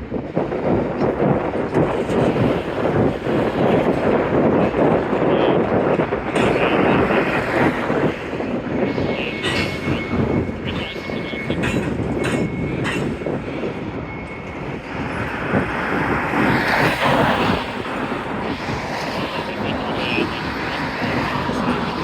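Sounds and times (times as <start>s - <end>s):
train wheels rumbling on rails: 0.0s - 22.0s
clacks at rail joints: 0.3s - 16.0s.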